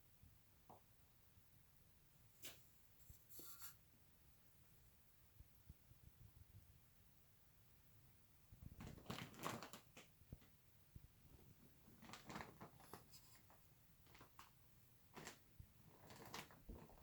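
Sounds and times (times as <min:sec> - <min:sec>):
faint rustles and clicks: 0:08.5 - 0:10.6, 0:11.3 - 0:17.0.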